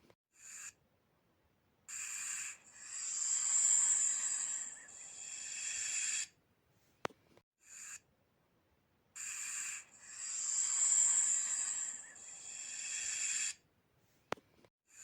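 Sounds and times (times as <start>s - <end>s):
snake hissing: 1.9s - 6.4s, 9.2s - 13.6s.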